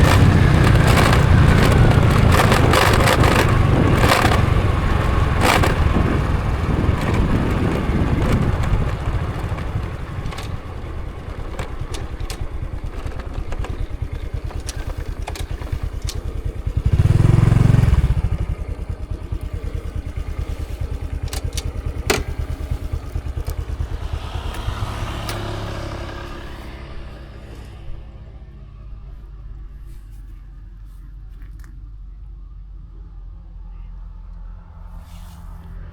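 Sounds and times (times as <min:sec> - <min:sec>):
sharp clicks: 0:00.0 - 0:16.6, 0:20.4 - 0:25.6
motorcycle engine idling: 0:00.0 - 0:34.8.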